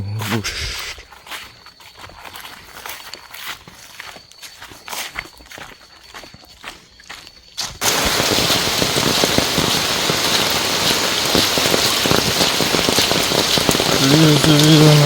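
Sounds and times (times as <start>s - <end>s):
heavy rain pouring: 7.8s - 15.0s.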